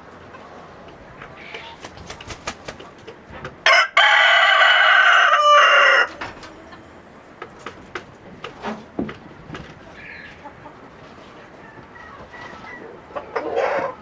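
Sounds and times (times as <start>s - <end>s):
rooster crowing: 3.6s - 6.7s, 11.6s - 14.0s.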